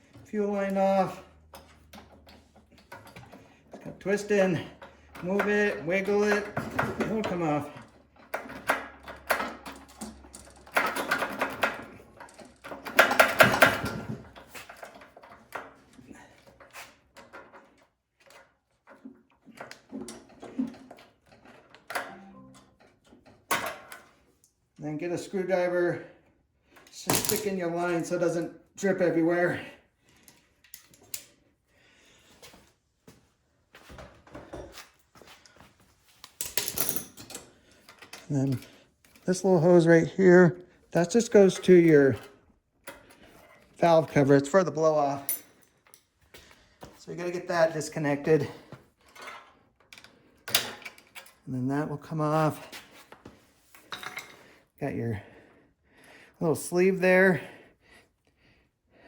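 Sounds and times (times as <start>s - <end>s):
tools scraping and rattling: 0.1s - 24.2s, 26.8s - 28.5s, 34.2s - 40.2s, 40.9s - 46.2s, 46.9s - 51.5s, 52.4s - 54.6s
clicks and knocks of engine parts: 4.7s - 21.9s.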